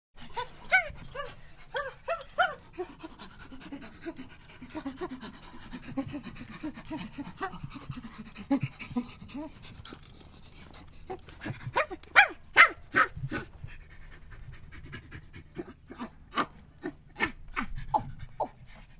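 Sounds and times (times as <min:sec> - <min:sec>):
dog panting: 0:00.2 - 0:12.1, 0:13.2 - 0:16.3, 0:17.6 - 0:18.9.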